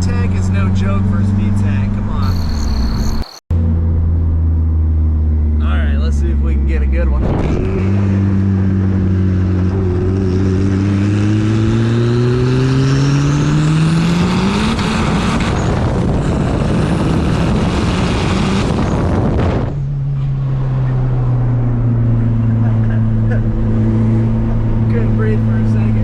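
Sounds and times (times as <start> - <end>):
car engine revving at full throttle: 5.4 - 26.0
engine droning: 20.2 - 26.0.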